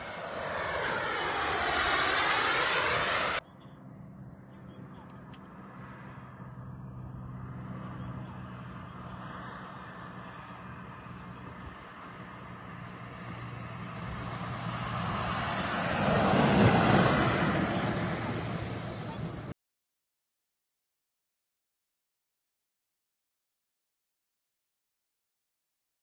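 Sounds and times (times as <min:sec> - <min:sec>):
turbine jet engines running: 0:00.0 - 0:19.5.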